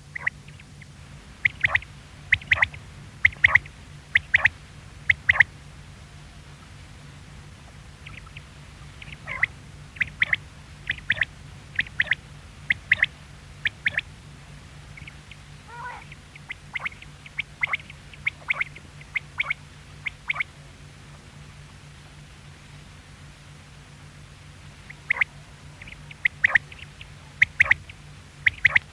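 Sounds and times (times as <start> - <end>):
quail calling: 0.0 - 5.5, 8.0 - 14.1, 14.9 - 20.6, 24.8 - 28.9
steady low hum: 0.0 - 28.9.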